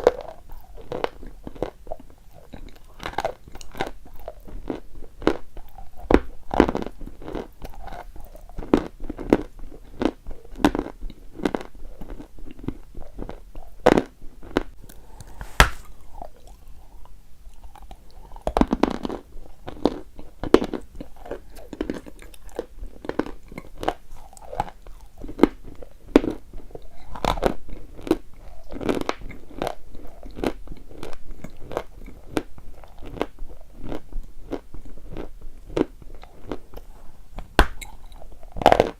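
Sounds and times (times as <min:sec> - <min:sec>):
crunching and chewing chalk: 0:00.0 - 0:38.9.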